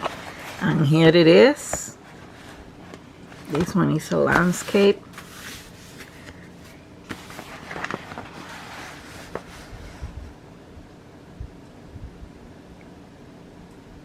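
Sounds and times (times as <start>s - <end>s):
canvas rustling: 2.0s - 10.3s.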